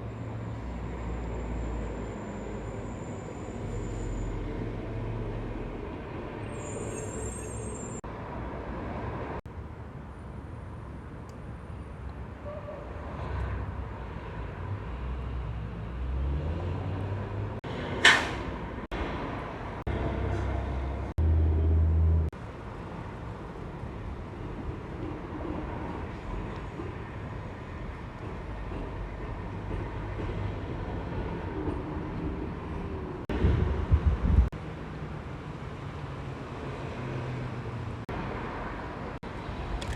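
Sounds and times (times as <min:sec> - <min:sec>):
trucks passing on road: 0:00.0 - 0:39.9
short sharp loud burst: 0:18.0 - 0:18.5.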